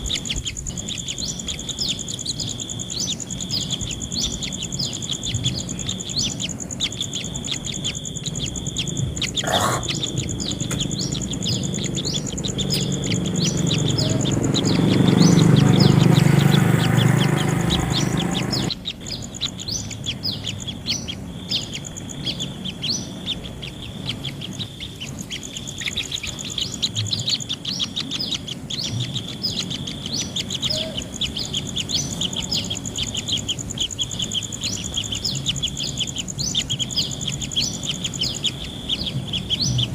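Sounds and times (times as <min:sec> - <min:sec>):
nestlings chirping: 0:00.0 - 0:39.9
steady high whine: 0:00.0 - 0:39.9
loud rushing noise: 0:09.4 - 0:18.8.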